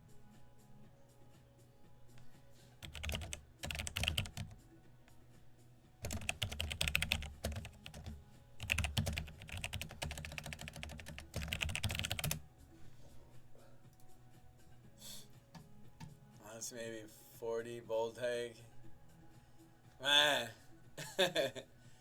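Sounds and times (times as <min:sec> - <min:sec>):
typing on computer keyboard: 0:02.8 - 0:04.6, 0:06.0 - 0:12.4.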